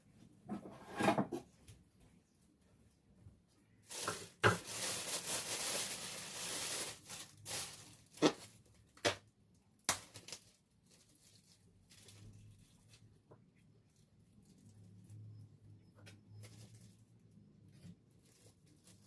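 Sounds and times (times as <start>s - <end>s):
packaging rustling and tearing: 3.9s - 8.8s, 9.9s - 13.0s.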